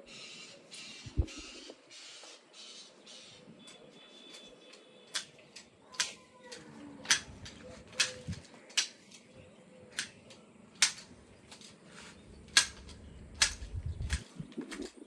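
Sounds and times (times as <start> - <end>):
garden shears snipping branches: 4.3 - 15.0.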